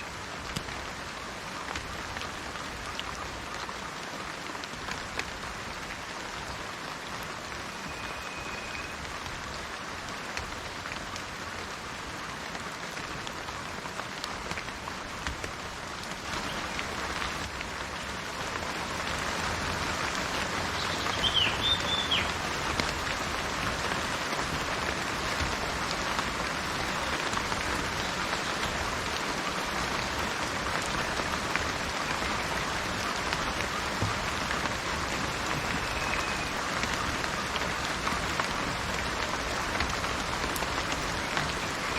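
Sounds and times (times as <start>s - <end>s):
rain falling on foliage: 0.0s - 41.9s
bird chirp: 20.8s - 22.4s.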